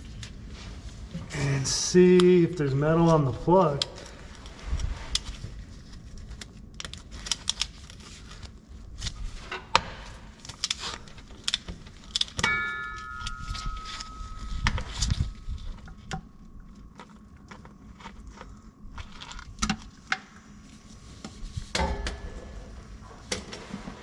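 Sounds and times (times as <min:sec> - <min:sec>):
struck metal ringing: 0:12.4 - 0:14.8.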